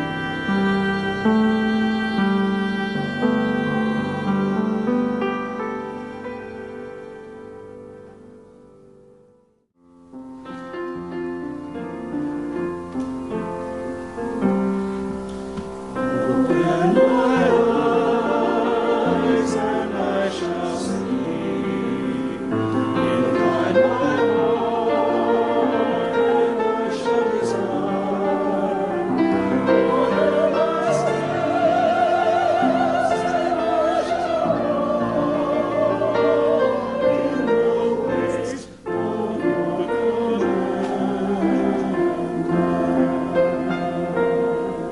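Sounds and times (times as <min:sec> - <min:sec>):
voices singing with vibrato: 0:00.0 - 0:06.6, 0:15.8 - 0:44.9
piano accompaniment: 0:00.0 - 0:44.9.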